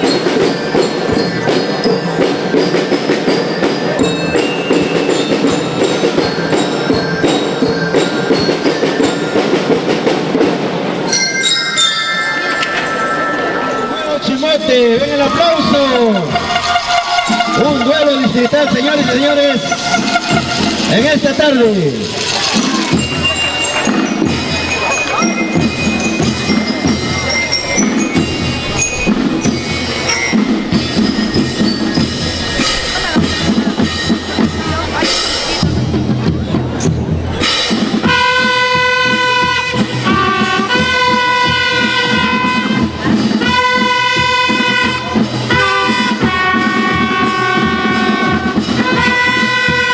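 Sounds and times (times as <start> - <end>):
ringing glockenspiel notes: 0.0 - 43.3
steady drumming: 0.0 - 49.9
bell-like lyre melody: 11.0 - 21.2, 22.3 - 34.2.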